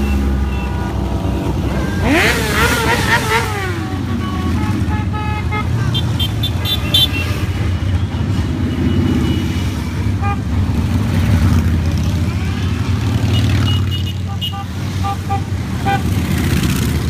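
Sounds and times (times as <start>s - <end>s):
motorcycles rumbling past: 0.0s - 4.8s, 15.7s - 17.0s
horns beeping: 0.0s - 16.9s.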